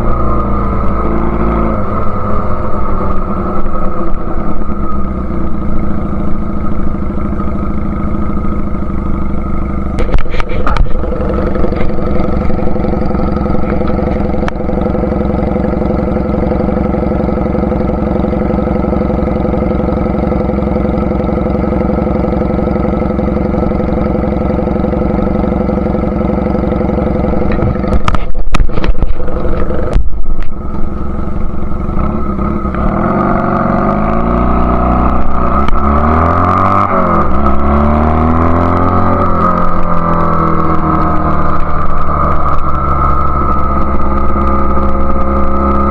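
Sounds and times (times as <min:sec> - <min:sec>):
loud rough noise: 0:00.0 - 0:45.9
motorcycle engine revving: 0:00.0 - 0:45.9.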